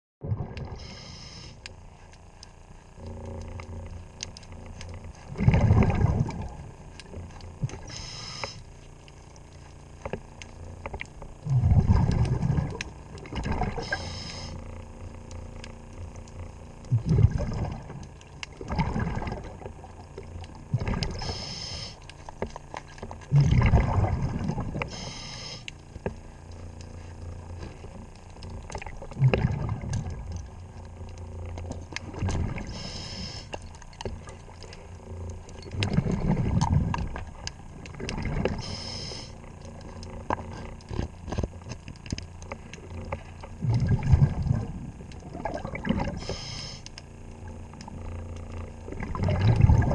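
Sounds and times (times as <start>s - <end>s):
exhaled air bubbling: 0.2s - 49.9s
regulator hissing inhalations: 0.8s - 1.6s, 7.9s - 8.6s, 13.8s - 14.6s, 21.2s - 22.0s, 24.9s - 25.7s, 32.7s - 33.5s, 38.6s - 39.4s, 46.2s - 46.8s
small clicks and knocks: 8.4s - 11.4s, 22.0s - 23.3s, 25.6s - 26.9s, 39.6s - 43.6s.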